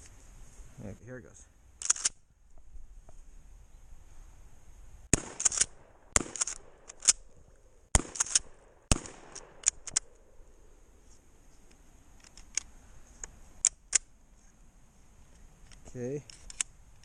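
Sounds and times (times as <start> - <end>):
shotgun shots: 5.1 - 10.1
shotgun pump clacks: 5.2 - 7.2, 8.0 - 10.1.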